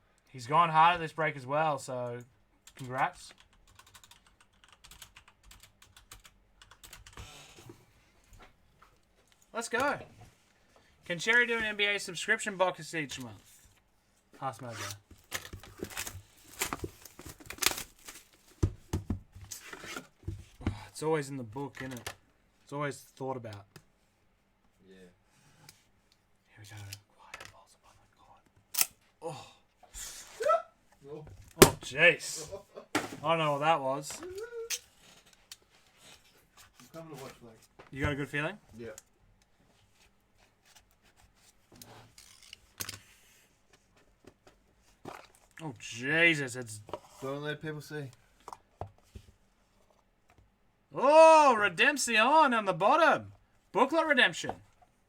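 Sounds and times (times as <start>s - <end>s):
plastic wrapping tearing: 15.9s - 18.4s.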